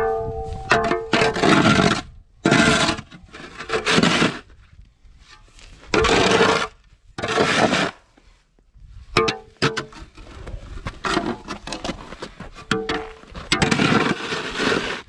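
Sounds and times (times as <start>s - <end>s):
snow shovel scraping wet snow: 1.3s - 4.5s, 6.0s - 8.0s, 13.6s - 15.0s.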